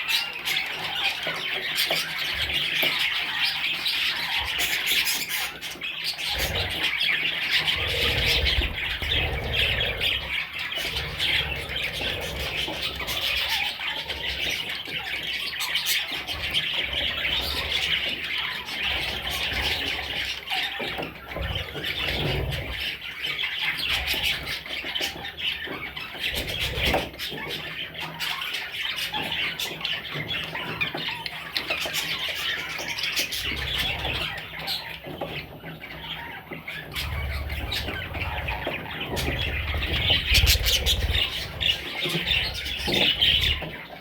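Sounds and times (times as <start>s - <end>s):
parrots chattering and squawking: 0.0s - 44.0s
low rumbling: 37.0s - 43.6s.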